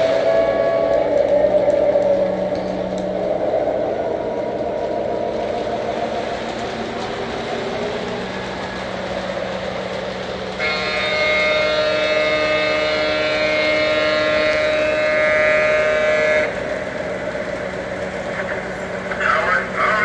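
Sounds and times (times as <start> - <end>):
train horn blast: 0.0 - 1.5, 10.6 - 17.0
diesel engine rumble: 16.5 - 20.0.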